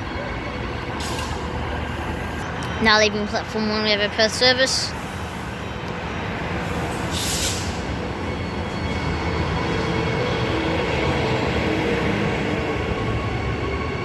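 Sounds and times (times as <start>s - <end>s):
electric train rumble: 0.0s - 14.0s
short hiss: 7.1s - 7.8s.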